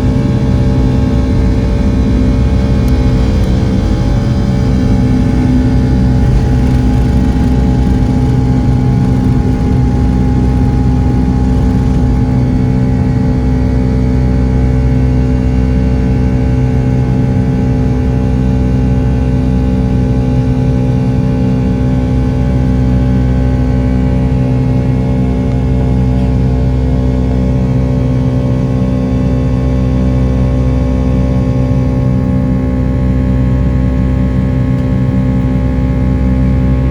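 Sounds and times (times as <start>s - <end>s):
engine whining tones: 0.0s - 15.0s
jet engines droning: 0.0s - 26.9s.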